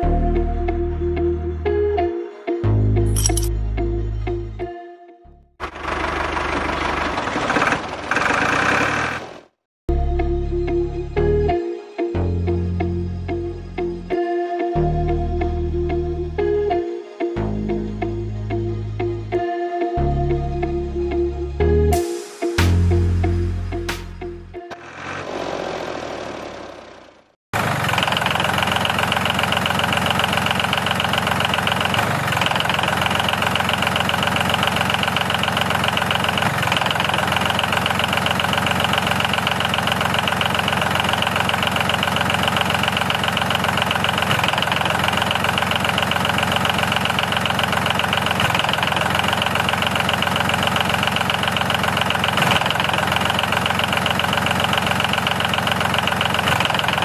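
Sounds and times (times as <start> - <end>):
music: 0.0 - 5.6, 9.9 - 24.8
engine-like mechanical running: 5.6 - 9.6, 24.7 - 57.0.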